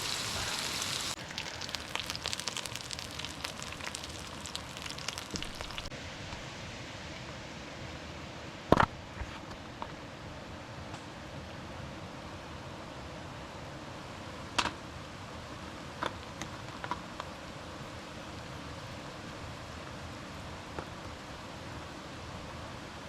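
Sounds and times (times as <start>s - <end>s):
campfire crackling and popping: 0.0s - 5.9s
steady hiss: 0.0s - 5.9s.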